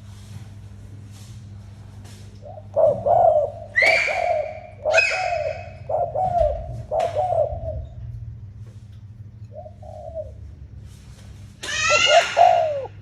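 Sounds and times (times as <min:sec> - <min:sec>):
dove cooing: 0:02.4 - 0:08.1, 0:09.5 - 0:10.8, 0:11.8 - 0:13.0
brief higher bird calls: 0:11.6 - 0:13.0.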